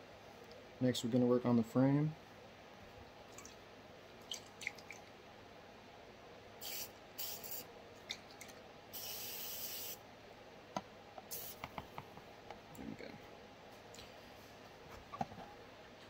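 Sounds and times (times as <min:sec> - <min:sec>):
aerosol spray can hissing: 0:06.6 - 0:07.6, 0:09.0 - 0:10.0, 0:11.3 - 0:11.7.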